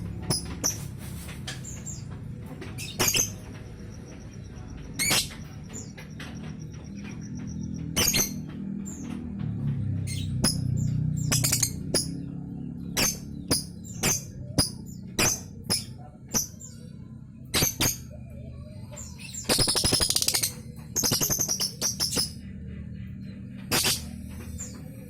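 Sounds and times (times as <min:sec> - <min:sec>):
lovebird chirping and trilling: 0:00.2 - 0:00.9, 0:02.8 - 0:03.4, 0:04.9 - 0:06.0, 0:06.7 - 0:09.0, 0:10.1 - 0:16.8, 0:18.8 - 0:22.4, 0:23.7 - 0:24.8.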